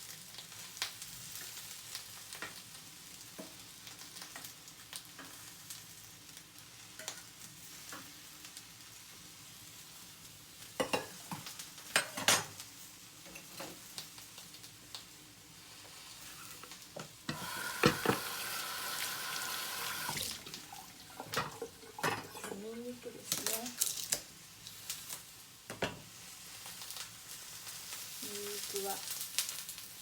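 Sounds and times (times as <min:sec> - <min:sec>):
eggplant sizzling in oil: 0:00.0 - 0:30.0
utensil knocking against pan: 0:17.3 - 0:18.5
water tap running: 0:17.3 - 0:23.5.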